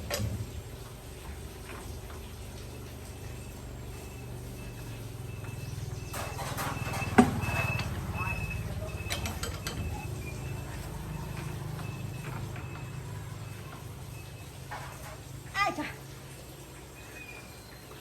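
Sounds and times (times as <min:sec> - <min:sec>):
diesel engine running: 0:00.0 - 0:15.5.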